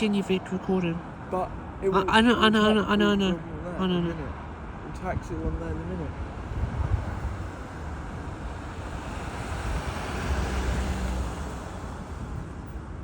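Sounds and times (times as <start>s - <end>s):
wind buffeting microphone: 4.8s - 13.0s.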